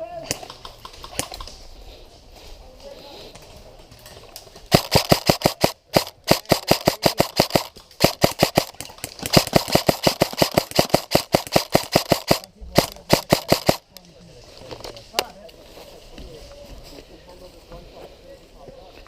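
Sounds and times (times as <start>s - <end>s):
airsoft gun shots: 4.7s - 13.8s.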